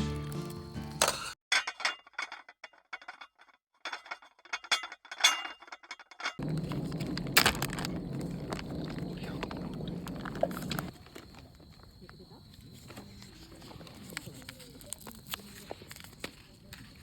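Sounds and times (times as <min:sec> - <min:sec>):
cookware clinking and scraping: 0:00.9 - 0:06.4
low hum: 0:06.4 - 0:10.9.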